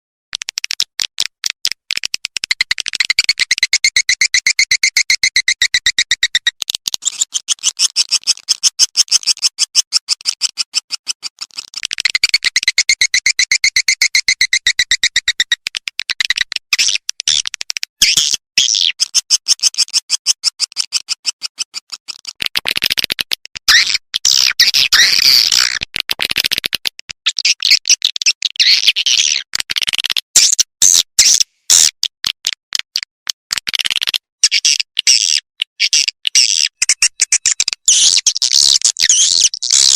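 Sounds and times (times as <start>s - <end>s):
swiftlet chirps and twitters: 2.9s - 9.6s, 12.0s - 15.6s, 34.4s - 39.9s.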